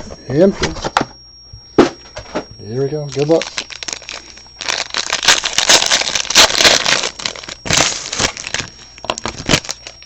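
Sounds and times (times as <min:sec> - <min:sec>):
wrapper tearing and crinkling: 0:03.1 - 0:10.0.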